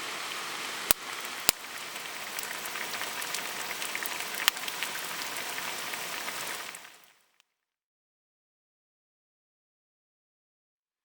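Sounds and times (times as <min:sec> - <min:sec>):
rain pattering on a tarp: 0:00.0 - 0:07.4.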